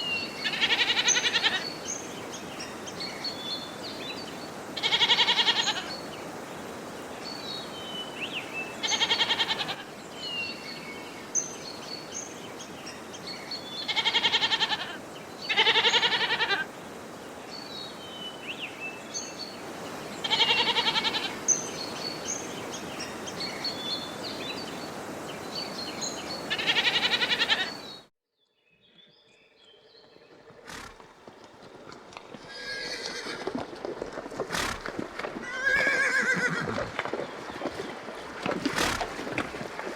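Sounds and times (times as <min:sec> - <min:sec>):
goat bleating: 0:00.4 - 0:01.6, 0:13.9 - 0:16.6, 0:26.5 - 0:27.7.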